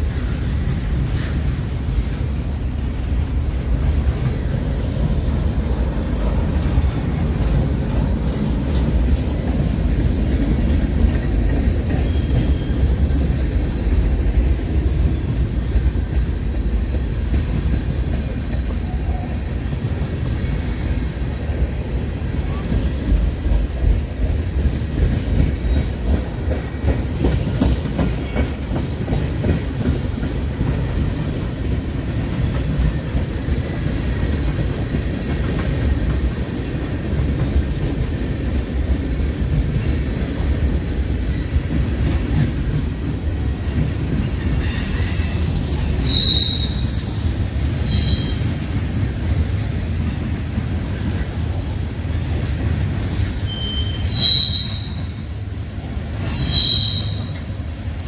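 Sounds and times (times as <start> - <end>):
freight train wheels rumbling: 0.0 - 58.0
high-pitched wheel squeals: 44.6 - 47.1, 53.5 - 55.2, 56.2 - 58.0.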